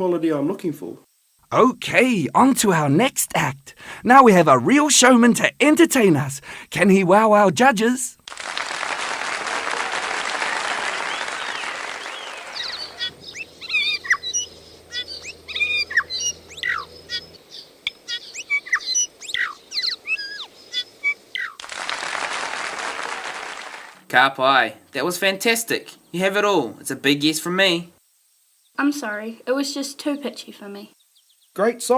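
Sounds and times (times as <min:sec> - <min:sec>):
applause: 0:08.2 - 0:13.1, 0:21.6 - 0:24.0
songbird chirping and whistling: 0:11.0 - 0:21.6, 0:30.9 - 0:31.6.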